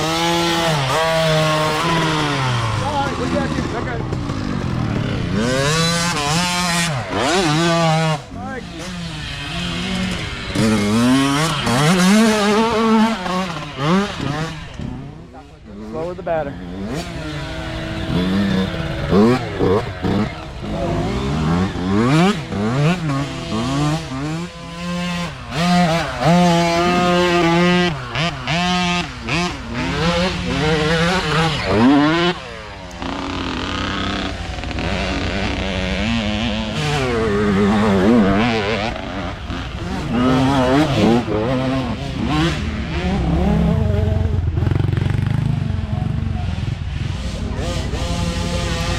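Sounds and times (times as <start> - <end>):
dirt bike engines revving: 0.0 - 48.9.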